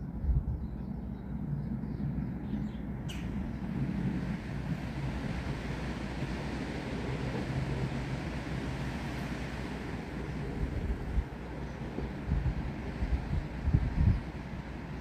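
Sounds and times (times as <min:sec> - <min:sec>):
wind buffeting microphone: 0:00.0 - 0:15.0
rain hissing through trees: 0:03.2 - 0:13.6.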